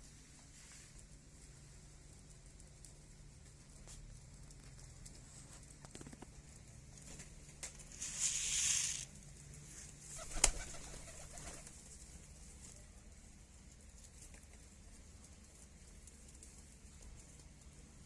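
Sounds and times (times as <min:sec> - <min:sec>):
bird wings flapping: 0:10.1 - 0:12.0.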